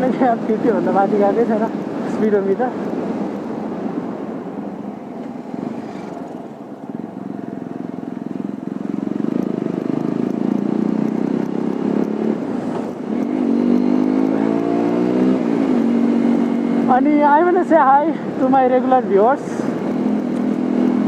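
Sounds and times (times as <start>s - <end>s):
road noise: 0.0s - 21.0s
motorcycle engine running: 6.0s - 17.2s.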